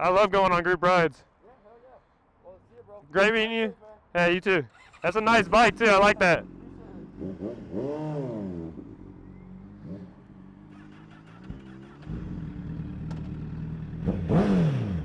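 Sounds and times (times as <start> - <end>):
vehicle engine revving and idling: 4.8 - 15.0.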